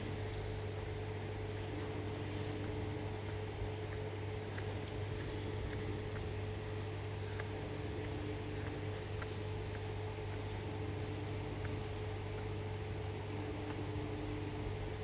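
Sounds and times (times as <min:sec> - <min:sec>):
low mechanical hum: 0:00.0 - 0:15.0
faint ticks: 0:01.6 - 0:12.6.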